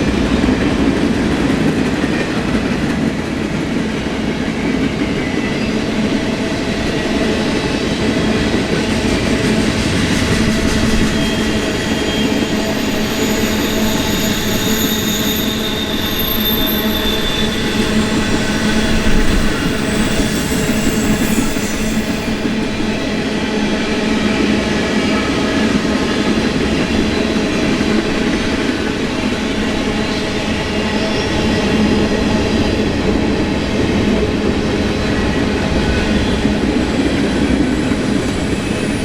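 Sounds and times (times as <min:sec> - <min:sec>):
train wheels rumbling on rail: 0:00.0 - 0:39.0
high wheel squeal: 0:06.9 - 0:23.2.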